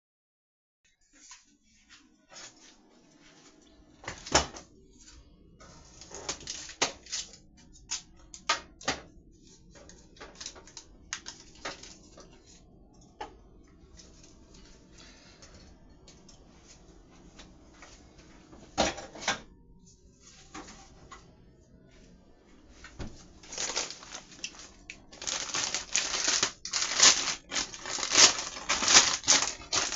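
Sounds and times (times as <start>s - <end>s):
faint steady hum: 1.1s - 29.9s
kitchen items knocking and clattering: 18.8s - 19.5s, 23.0s - 29.9s.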